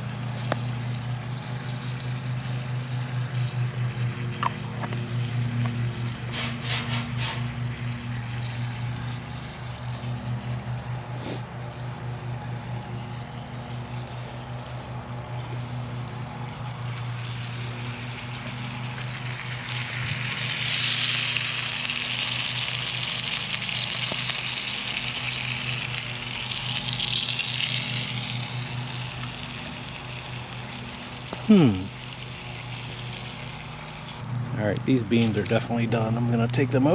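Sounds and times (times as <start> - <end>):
low pulsing hum: 0.0 - 36.9
food sizzling over a fire: 17.0 - 34.2.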